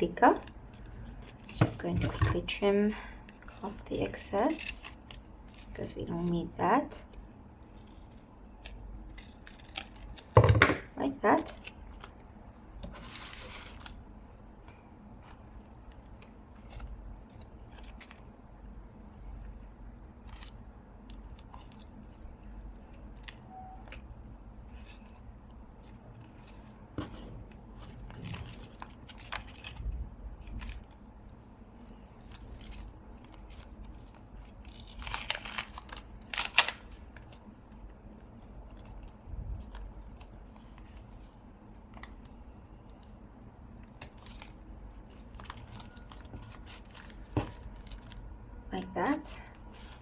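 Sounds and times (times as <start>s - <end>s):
paper and tape rustling: 11.4s - 14.0s, 15.2s - 18.3s, 24.7s - 42.4s, 43.8s - 48.3s, 49.5s - 50.0s.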